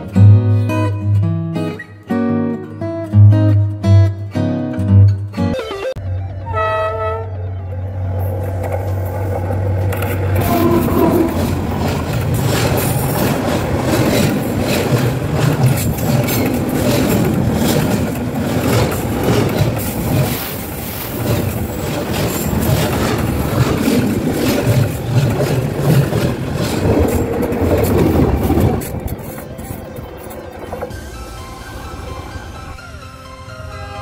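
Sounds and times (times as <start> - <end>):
train rumbling overhead: 6.1 - 34.0
steel wheels clattering on rails: 8.2 - 31.1.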